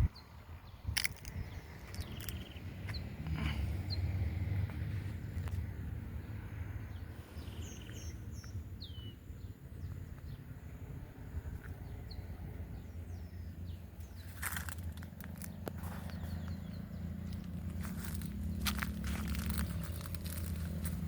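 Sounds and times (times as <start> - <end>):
birds chirping: 0.0 - 21.0
low rumble: 8.3 - 21.0.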